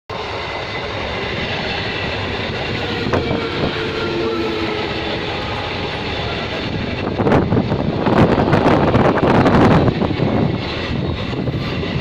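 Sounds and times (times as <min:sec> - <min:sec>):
train wheels on rails: 0:00.1 - 0:12.0.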